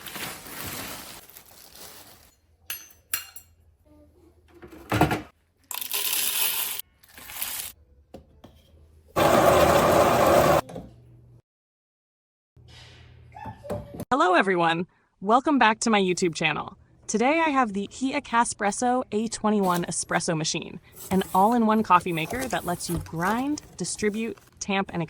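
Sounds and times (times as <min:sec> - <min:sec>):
espresso machine mechanical noise: 0:09.2 - 0:10.6.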